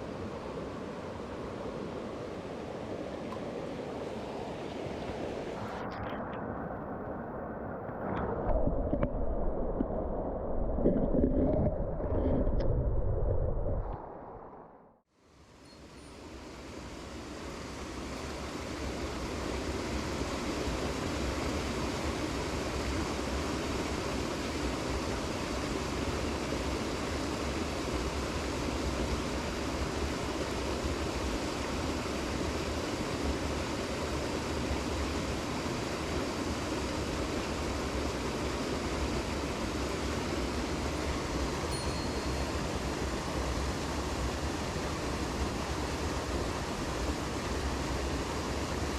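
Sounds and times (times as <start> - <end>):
mountain stream rushing: 16.4 - 48.9.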